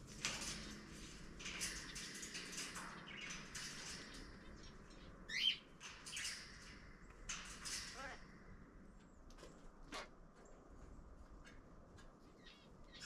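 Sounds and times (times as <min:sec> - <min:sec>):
birds chirping and calling: 0:00.2 - 0:08.2, 0:12.2 - 0:13.0.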